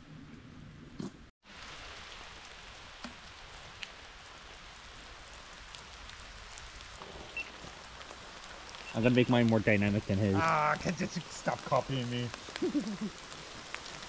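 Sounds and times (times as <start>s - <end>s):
rain falling: 1.4s - 14.0s
drops ticking: 8.7s - 14.0s.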